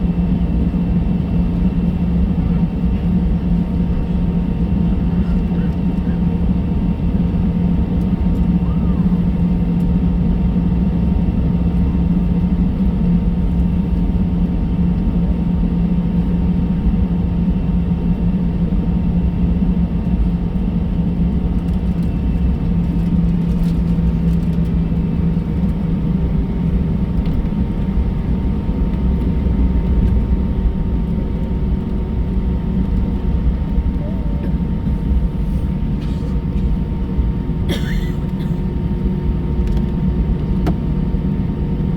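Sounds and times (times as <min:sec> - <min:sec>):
faint engine whine: 0:00.0 - 0:41.9
jet engines idling in cabin: 0:00.0 - 0:41.9.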